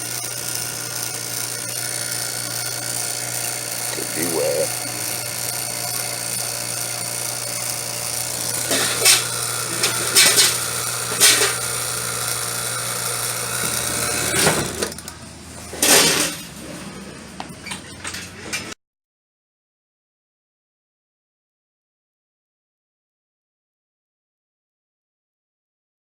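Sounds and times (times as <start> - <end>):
vacuum pump running: 0.0 - 16.4.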